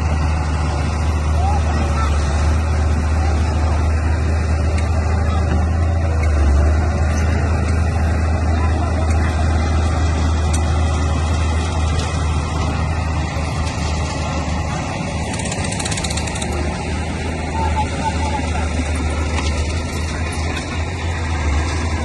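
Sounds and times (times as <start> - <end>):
bulldozer diesel engine drone: 0.0 - 22.0
faint rapid clicking: 15.2 - 16.6.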